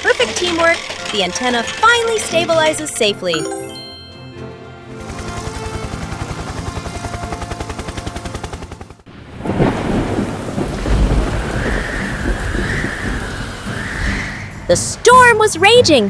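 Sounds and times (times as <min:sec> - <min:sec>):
fast even rattling: 0:00.0 - 0:03.2
heavy rain: 0:09.1 - 0:14.6
rumbling thunder: 0:09.2 - 0:14.3.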